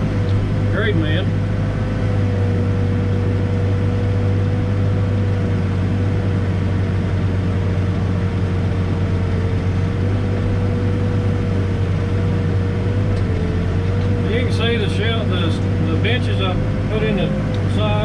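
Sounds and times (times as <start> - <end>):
backhoe diesel engine droning: 0.0 - 18.0
thin steady whine: 13.2 - 18.0.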